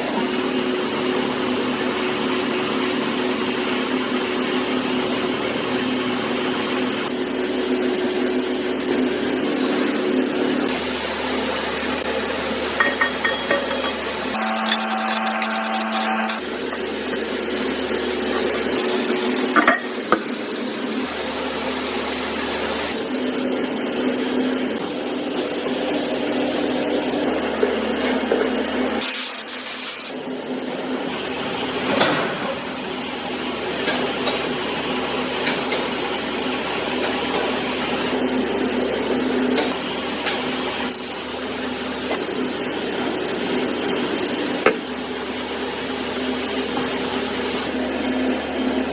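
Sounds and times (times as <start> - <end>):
mechanical hum: 0.0 - 48.9
machinery humming: 5.3 - 28.0.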